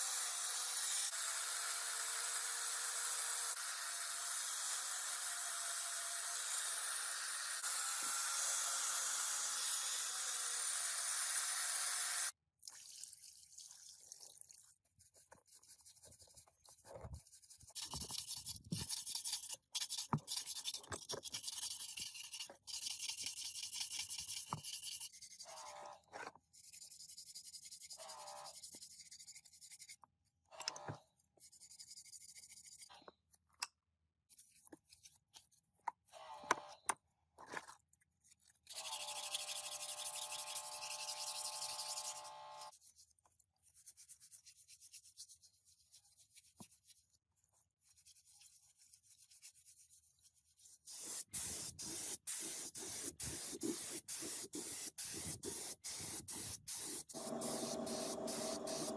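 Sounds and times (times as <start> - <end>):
power tool whine: 0.0 - 12.3, 57.2 - 58.9.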